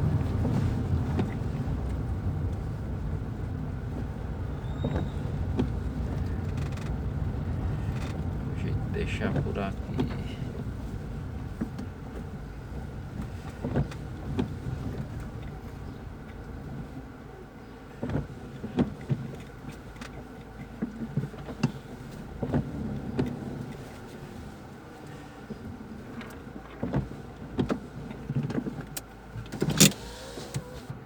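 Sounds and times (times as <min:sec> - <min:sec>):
car engine low rumble: 0:00.0 - 0:31.0.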